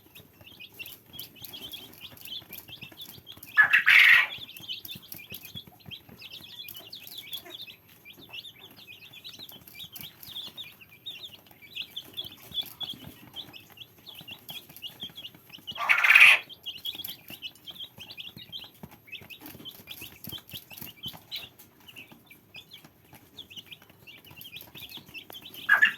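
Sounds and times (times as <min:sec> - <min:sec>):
chicks peeping: 0:00.0 - 0:25.9
louder longer chick call: 0:15.8 - 0:16.4.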